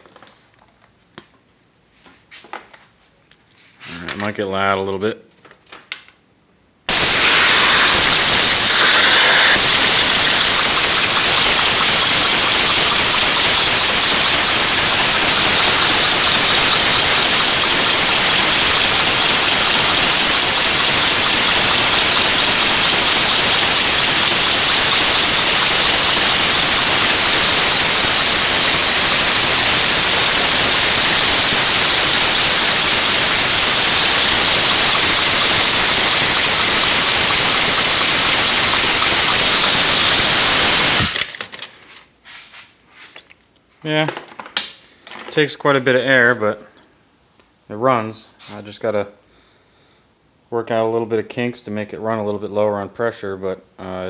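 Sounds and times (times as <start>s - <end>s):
compressed air engine hissing: 6.9s - 43.2s.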